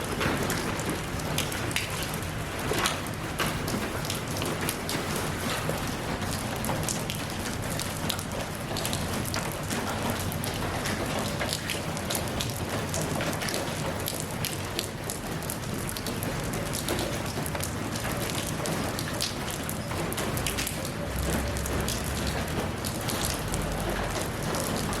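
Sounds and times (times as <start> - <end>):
rain falling: 0.0 - 25.0
raindrops ticking on surfaces: 0.0 - 25.0.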